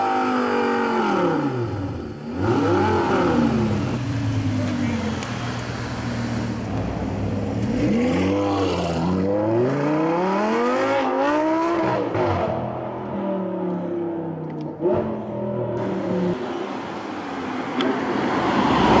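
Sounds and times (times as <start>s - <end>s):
sports car engine revving: 0.0s - 12.7s.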